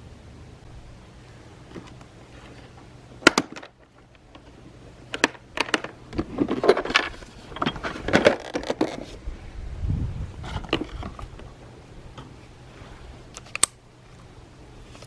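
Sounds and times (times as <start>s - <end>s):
hard objects clicking and knocking: 5.1s - 9.0s.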